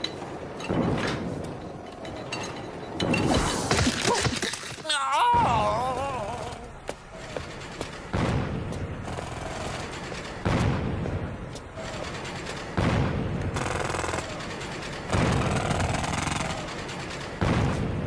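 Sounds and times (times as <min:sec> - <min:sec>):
rapid mechanical rattling and hammering: 0:09.0 - 0:10.7, 0:11.5 - 0:12.9, 0:13.5 - 0:17.5.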